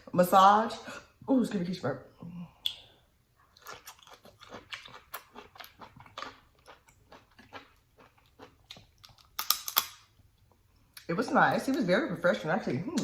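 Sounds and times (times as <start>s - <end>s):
wet chewing and lip smacking: 2.6s - 11.1s.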